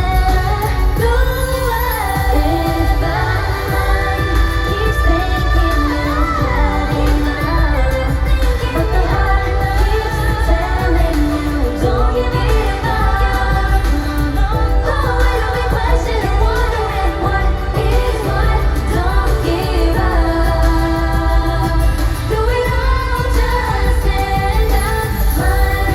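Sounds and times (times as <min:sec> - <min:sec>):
backing track with heavy bass: 0:00.0 - 0:25.9
female vocals singing pop song: 0:00.0 - 0:25.9.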